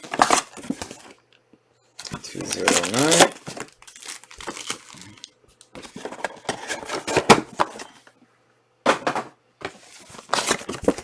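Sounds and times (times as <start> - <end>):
cards clicking and rustling: 2.0 - 8.0.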